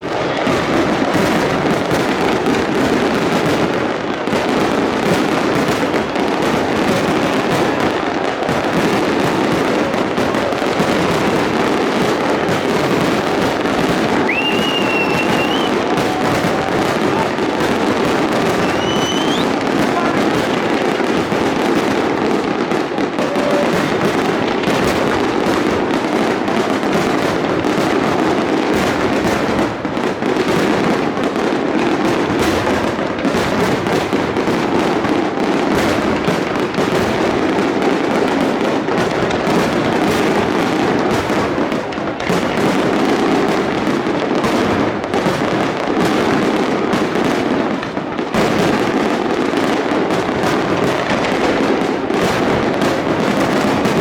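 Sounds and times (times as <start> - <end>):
fireworks bursts and crackling: 0.0 - 54.0
rising firework whistle: 13.9 - 20.3, 23.0 - 24.2.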